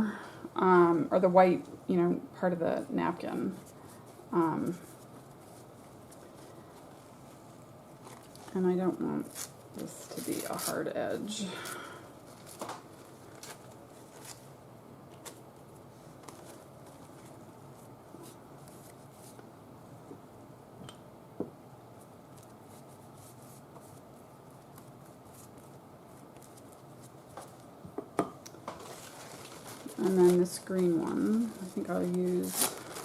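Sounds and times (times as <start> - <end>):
paper rustling and ticking: 12.3 - 14.5, 22.3 - 27.7, 28.6 - 33.0.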